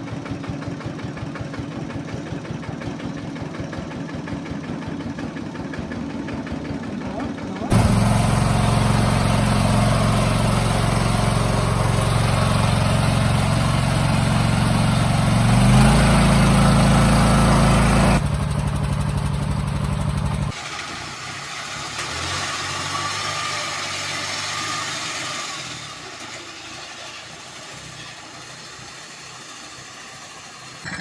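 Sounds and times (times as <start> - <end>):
walking tractor engine running: 0.0 - 20.9.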